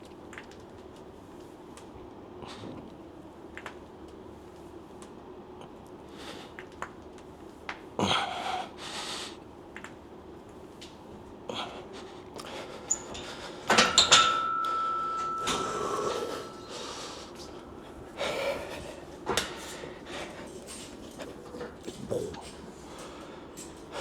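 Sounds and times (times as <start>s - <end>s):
barbell plates clanking: 12.9s - 17.7s
metallic ring: 12.9s - 18.0s
forceful breathing: 15.2s - 21.8s.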